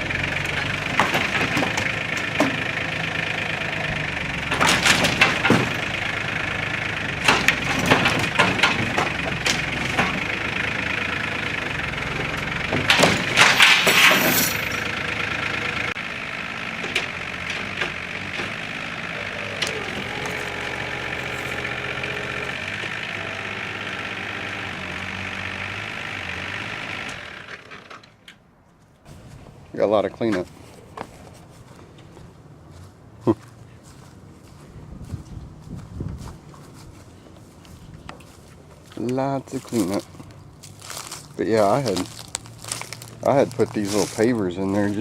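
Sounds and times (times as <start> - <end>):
wood cracking and crashing: 0.0 - 14.6, 39.6 - 45.0
tractor diesel engine running: 0.0 - 45.0.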